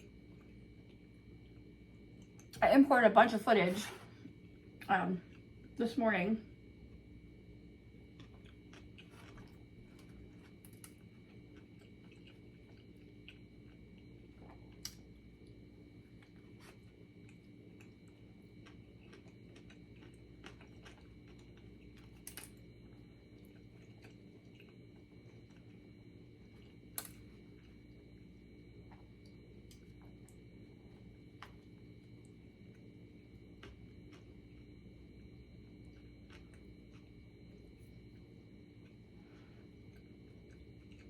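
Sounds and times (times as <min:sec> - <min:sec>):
steady low hum: 0:00.0 - 0:41.0
person chewing: 0:08.1 - 0:15.3, 0:16.1 - 0:28.0, 0:35.6 - 0:41.0.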